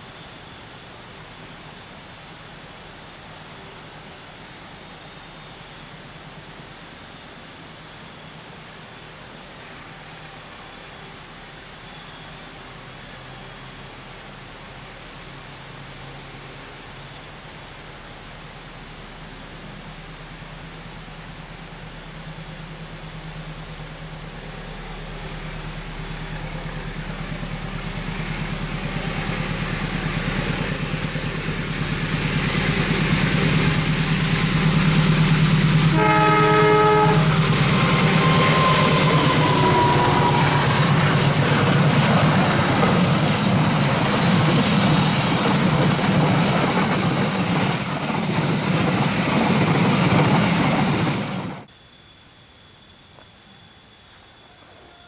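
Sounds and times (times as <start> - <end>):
diesel locomotive engine: 0.0 - 55.0
train wheels on rails: 20.7 - 51.7
train horn blast: 33.4 - 42.9.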